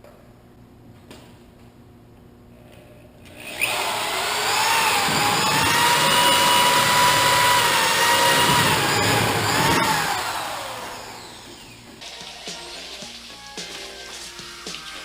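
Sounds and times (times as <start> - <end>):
motor-driven machine whining: 3.5 - 11.8.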